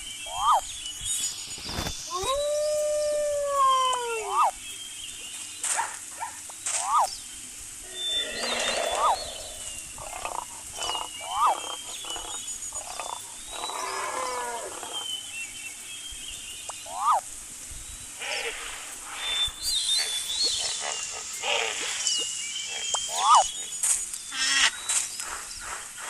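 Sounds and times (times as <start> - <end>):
animal cries: 0.3 - 0.6, 2.1 - 4.6, 6.3 - 7.1, 7.8 - 15.1, 16.9 - 17.2, 22.7 - 23.5
high chirps: 7.8 - 15.3, 16.4 - 17.3, 19.2 - 25.0.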